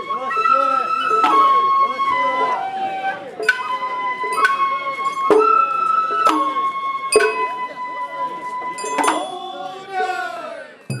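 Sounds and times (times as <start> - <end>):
bamboo flute long notes: 0.0 - 10.7
crowd voices: 0.0 - 11.0
drum beats: 1.1 - 7.6.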